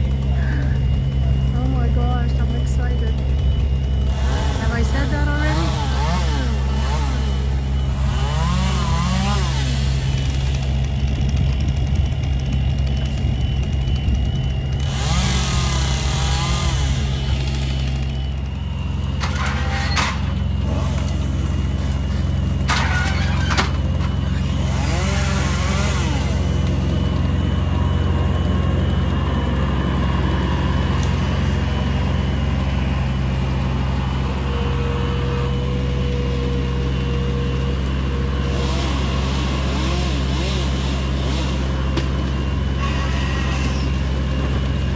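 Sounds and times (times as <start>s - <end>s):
rising and falling whine: 0.0s - 24.6s
machinery engine running: 0.0s - 44.9s.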